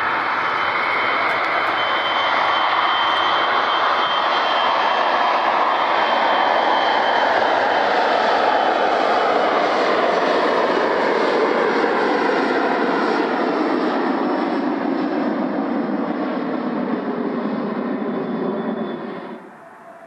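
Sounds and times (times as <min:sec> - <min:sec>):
whining tones sliding down: 0:00.0 - 0:08.7, 0:17.2 - 0:20.0
jet airliner engines roaring: 0:00.0 - 0:20.0.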